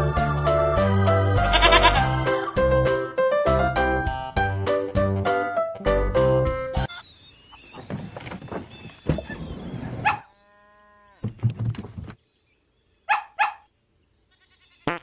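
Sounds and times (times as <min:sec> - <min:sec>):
farm animal calling: 0:01.4 - 0:02.2, 0:08.8 - 0:11.3, 0:13.0 - 0:15.0.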